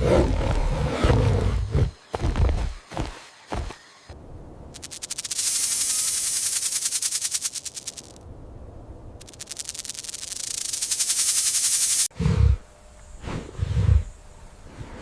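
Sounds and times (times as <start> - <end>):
rattlesnake tail rattling: 4.7 - 8.2, 9.2 - 12.1.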